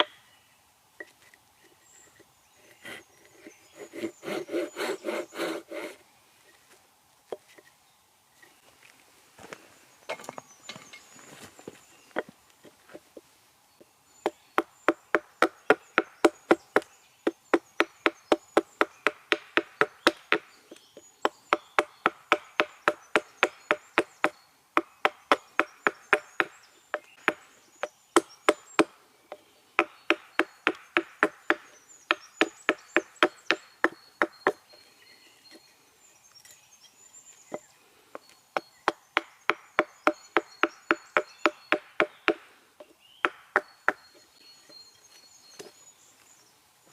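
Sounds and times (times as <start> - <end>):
hatchet chopping wood: 14.2 - 20.5, 21.2 - 34.6, 38.6 - 42.5, 43.2 - 44.2.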